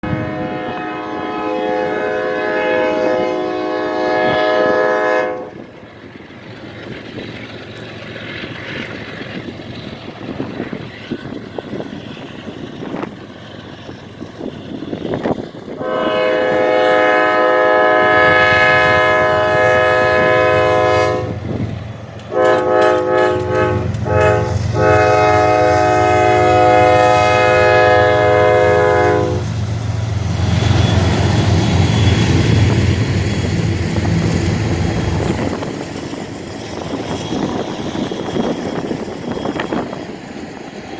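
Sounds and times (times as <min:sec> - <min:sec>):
locomotive air horn: 0:00.0 - 0:05.6, 0:15.8 - 0:21.5, 0:22.3 - 0:29.5
rolling rail noise: 0:00.0 - 0:40.9.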